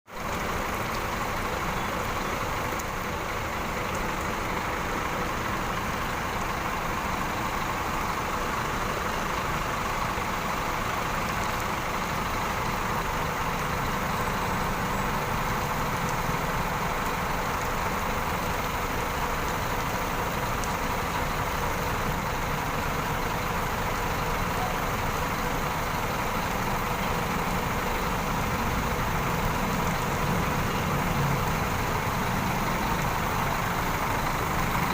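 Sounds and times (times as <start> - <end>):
bus diesel engine idling: 0.1 - 34.9.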